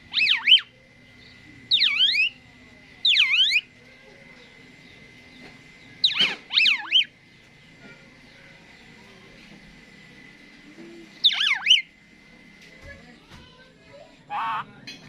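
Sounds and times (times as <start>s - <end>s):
starling swooping whistles: 0.1s - 0.7s, 1.7s - 2.4s, 3.1s - 3.7s, 6.0s - 7.1s, 11.2s - 11.9s.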